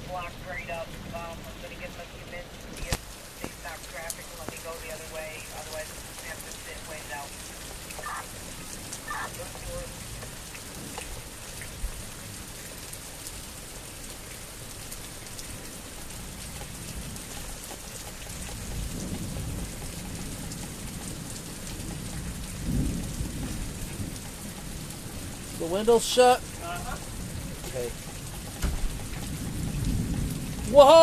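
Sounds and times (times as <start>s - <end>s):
thunder rumbling: 0.0s - 11.0s, 18.3s - 31.0s
steady rain falling: 0.0s - 31.0s.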